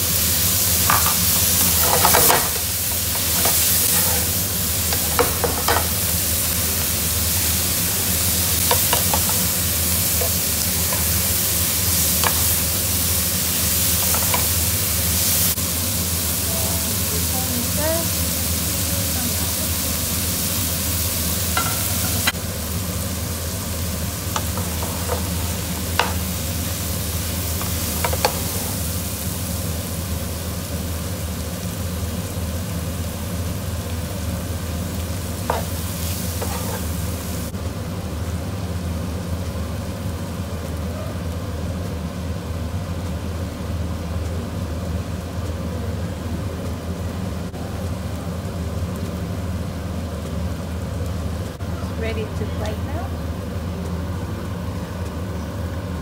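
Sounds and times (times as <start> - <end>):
prawns sizzling in a pan: 0.0 - 56.0
spatula knocking on pan: 5.1 - 5.9, 21.6 - 22.4.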